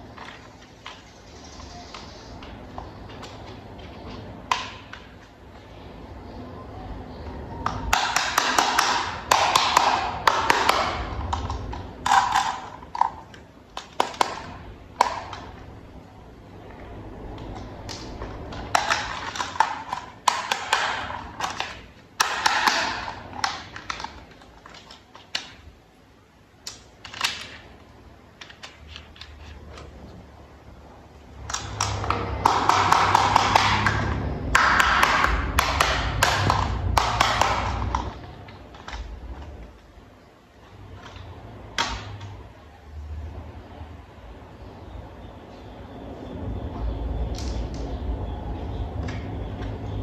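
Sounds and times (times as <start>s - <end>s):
plastic toy parts clicking: 17.3s - 25.7s, 26.6s - 27.7s, 28.4s - 29.9s.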